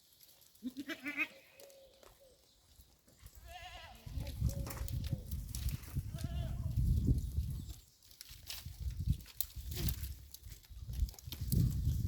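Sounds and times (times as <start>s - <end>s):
goat bleating: 0.6s - 1.6s, 3.4s - 4.2s, 6.1s - 6.7s.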